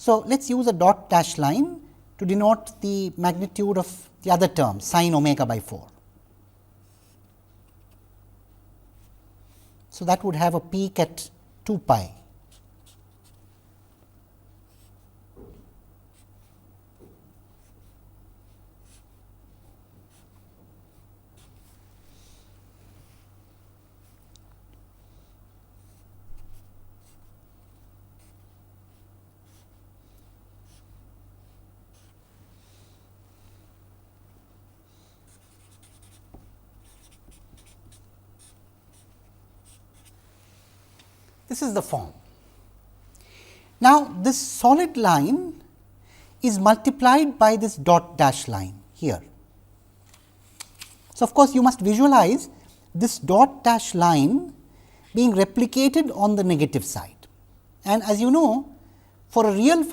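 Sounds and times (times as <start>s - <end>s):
low electrical hum: 0.0s - 59.9s
pen strokes on paper: 12.4s - 15.1s, 16.1s - 16.6s, 17.4s - 24.3s, 24.9s - 33.8s, 34.6s - 41.3s
soft knocks: 15.4s - 15.8s.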